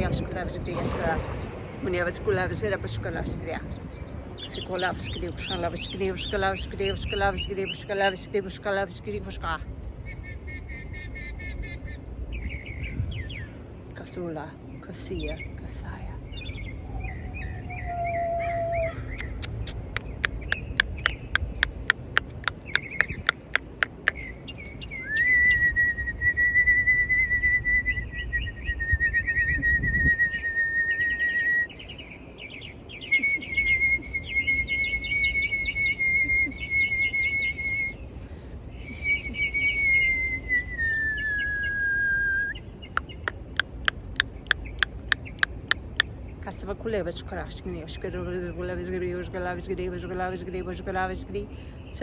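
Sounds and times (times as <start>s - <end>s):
birds chirping rapidly: 0.0s - 8.4s, 10.0s - 13.6s, 16.3s - 25.2s, 31.0s - 36.0s, 42.5s - 46.4s.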